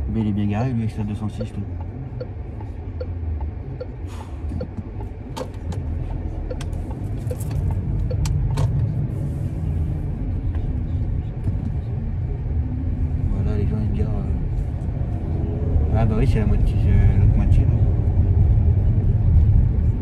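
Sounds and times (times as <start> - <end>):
turn signal ticking: 0.0 - 8.9
sharp clicks in car cabin: 4.6 - 8.8.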